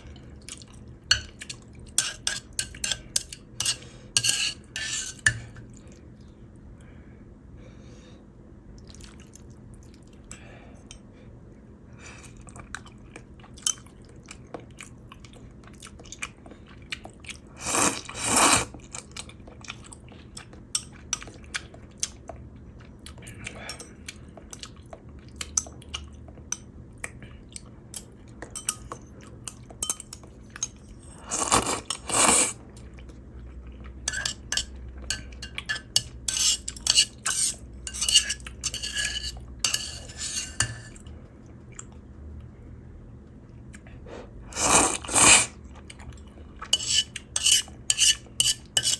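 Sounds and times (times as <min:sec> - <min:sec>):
chewing with small clicks: 0:00.0 - 0:03.9, 0:08.7 - 0:11.1, 0:12.2 - 0:17.6, 0:18.7 - 0:31.1, 0:32.6 - 0:36.3, 0:41.0 - 0:42.5, 0:43.1 - 0:44.0, 0:45.6 - 0:48.7
loud slurps: 0:17.6 - 0:18.7, 0:31.2 - 0:32.6, 0:44.5 - 0:45.6.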